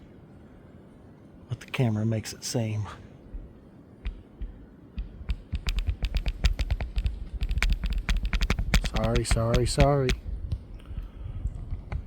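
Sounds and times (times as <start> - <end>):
wind rumble on microphone: 3.2 - 12.0.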